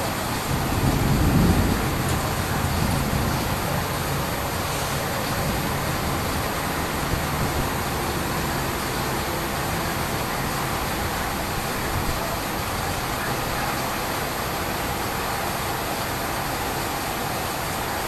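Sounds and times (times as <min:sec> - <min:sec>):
thunder rumbling: 0:00.0 - 0:12.4
rain rushing: 0:00.0 - 0:18.0.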